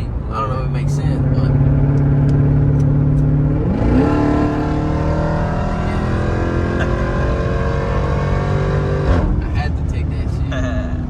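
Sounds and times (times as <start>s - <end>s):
car engine accelerating: 0.0s - 9.5s.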